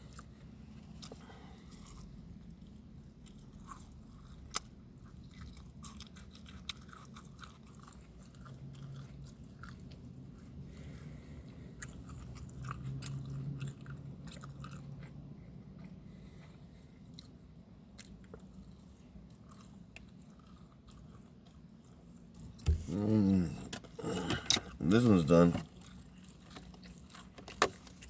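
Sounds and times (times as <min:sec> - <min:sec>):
person chewing and crunching food: 0:00.0 - 0:28.0.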